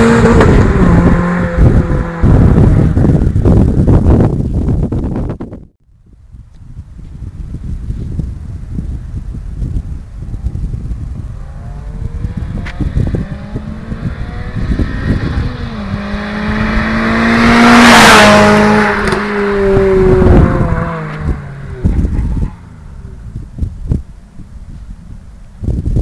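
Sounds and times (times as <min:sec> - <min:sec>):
wind rumbling on microphone: 0:00.0 - 0:26.0
car engine accelerating past: 0:11.3 - 0:23.0.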